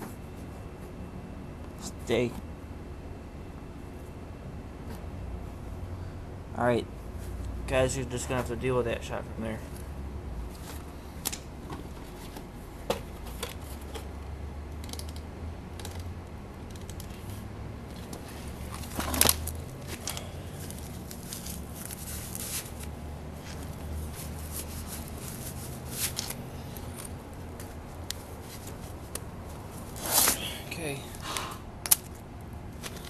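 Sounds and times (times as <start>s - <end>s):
low hum: 0.0s - 33.0s
handling clicks and rustles: 9.6s - 31.2s, 31.8s - 33.0s.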